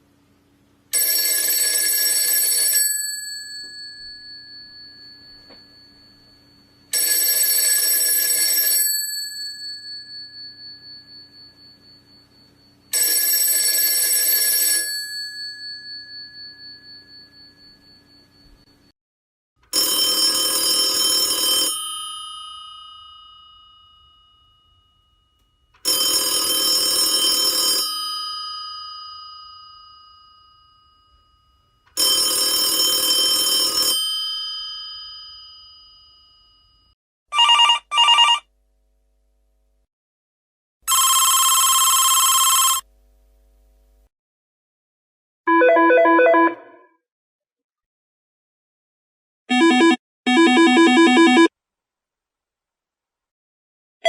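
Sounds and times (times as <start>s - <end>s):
different phone bell ringing: 0.9s - 18.9s, 19.7s - 38.5s, 40.9s - 42.9s, 45.5s - 46.8s, 49.5s - 51.5s
old telephone bell ringing: 0.9s - 18.9s, 19.7s - 38.4s, 40.9s - 42.9s.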